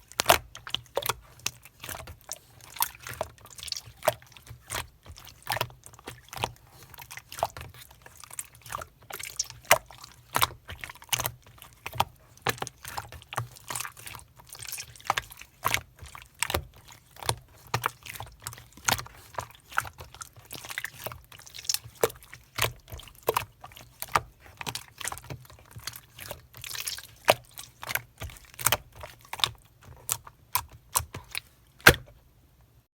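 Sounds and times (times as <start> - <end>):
slime squeezed by hands: 0.0 - 32.1.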